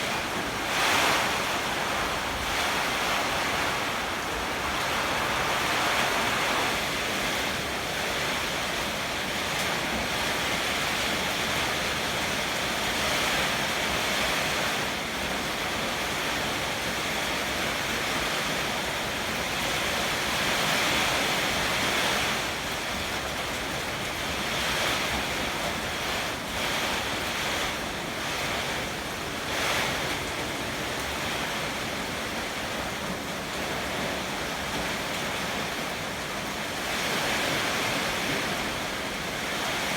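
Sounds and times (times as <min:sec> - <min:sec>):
heavy rain: 0:00.0 - 0:39.9
strong wind: 0:00.0 - 0:39.9.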